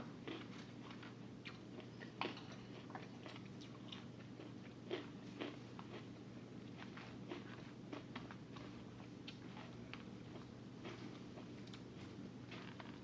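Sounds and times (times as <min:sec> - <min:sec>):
faint low hum: 0:00.0 - 0:13.0
person chewing food: 0:00.0 - 0:13.0.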